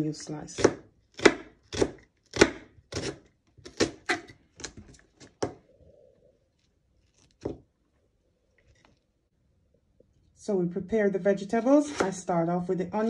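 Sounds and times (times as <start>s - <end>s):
knife slicing onion on board: 0.6s - 4.7s, 11.7s - 12.3s.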